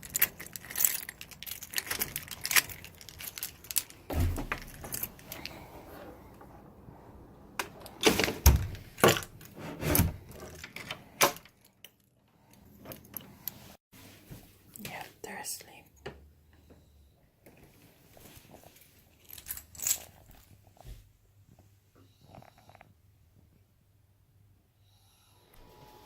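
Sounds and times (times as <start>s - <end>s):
keys jangling: 0.0s - 5.5s, 19.2s - 20.5s.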